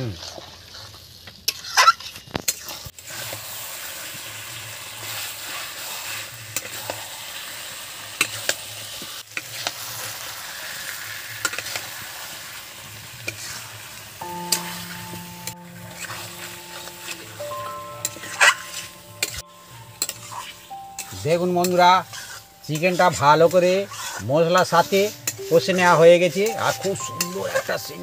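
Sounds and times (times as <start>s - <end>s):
chicken sizzling in oil: 0.0s - 28.0s
steady musical tone: 14.2s - 28.0s
utensil scraping pan: 22.0s - 25.7s.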